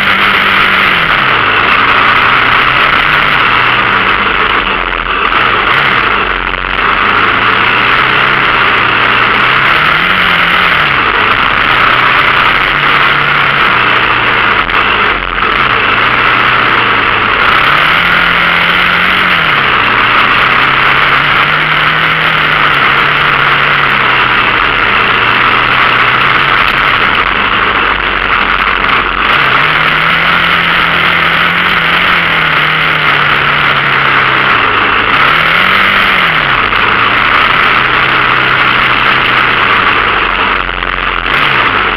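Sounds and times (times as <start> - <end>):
dirt bike engine: 0.0 - 41.9
loud rushing noise: 0.0 - 41.9.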